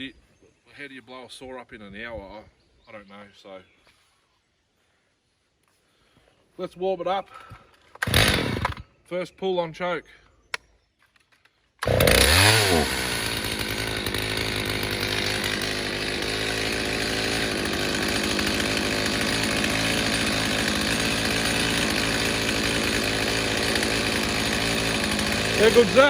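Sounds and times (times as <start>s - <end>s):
chainsaw starting and revving: 8.0s - 8.9s, 11.8s - 26.0s.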